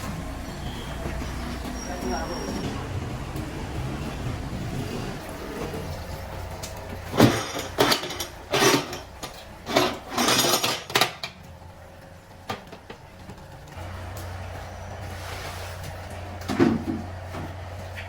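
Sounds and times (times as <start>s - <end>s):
low workshop hum: 0.0s - 18.0s
metal clanking on metal: 5.4s - 11.5s.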